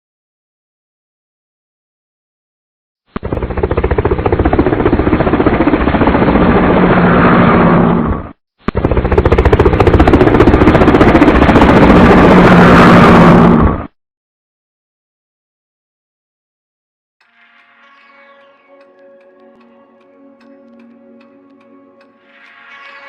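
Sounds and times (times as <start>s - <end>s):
motorcycle engine running loud: 8.8s - 12.6s.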